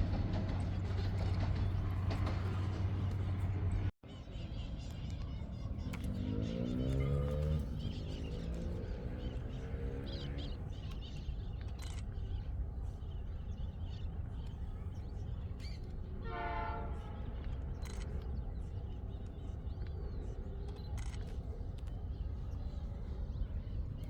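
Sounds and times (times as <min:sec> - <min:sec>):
freight train rumbling: 0:00.0 - 0:24.0
locomotive horn: 0:16.2 - 0:17.5.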